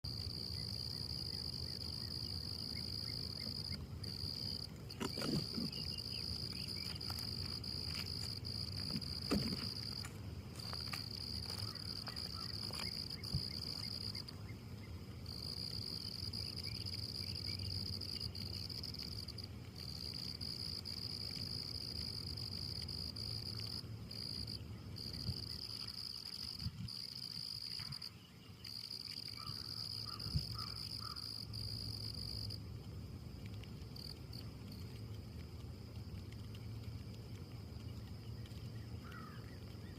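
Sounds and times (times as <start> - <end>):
insects trilling: 0.1 - 39.9
low background rumble: 31.7 - 39.9.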